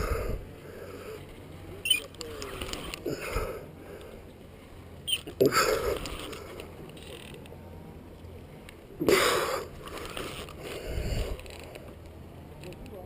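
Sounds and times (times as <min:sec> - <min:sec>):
fishing reel working under load: 0:01.8 - 0:03.0, 0:05.1 - 0:07.5, 0:09.7 - 0:11.8.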